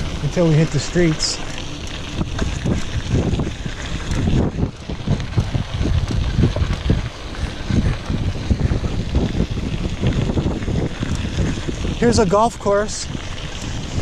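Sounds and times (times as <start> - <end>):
bicycle rumble on trail: 0.0 - 14.0
wind buffeting microphone: 0.0 - 14.0.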